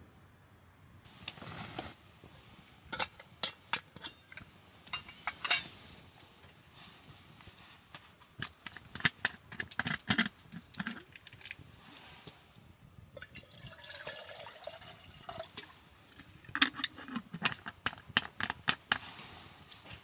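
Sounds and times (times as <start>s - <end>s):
utensils clicking and clinking: 2.6s - 6.6s
liquid pouring into container: 9.5s - 12.2s, 13.2s - 17.2s.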